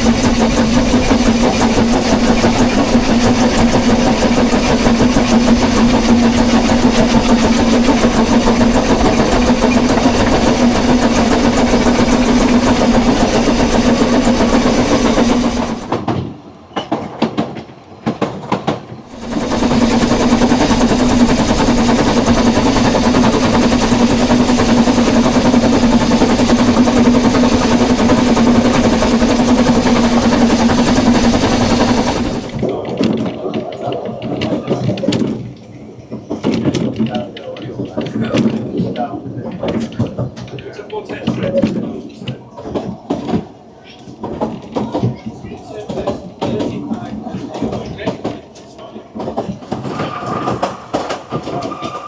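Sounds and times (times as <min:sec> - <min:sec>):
engine humming: 0:00.0 - 0:16.0, 0:19.1 - 0:32.7.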